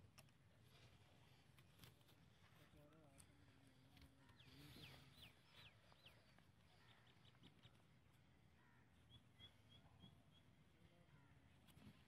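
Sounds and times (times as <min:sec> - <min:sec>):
faint bird chirps: 0:03.5 - 0:12.0.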